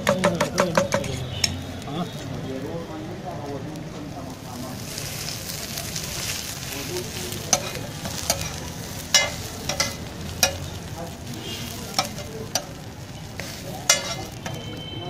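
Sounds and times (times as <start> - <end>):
patties sizzling on griddle: 0.0 - 15.0
spatula clinking on metal: 7.4 - 10.8, 11.6 - 12.8, 13.4 - 14.7.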